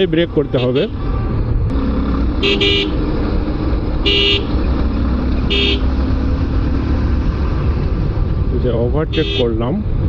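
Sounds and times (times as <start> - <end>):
motorcycle low rumble: 0.0 - 10.0
vehicle horn beeping: 0.5 - 1.0, 2.4 - 3.2, 3.9 - 4.7, 5.4 - 6.0, 9.1 - 9.6.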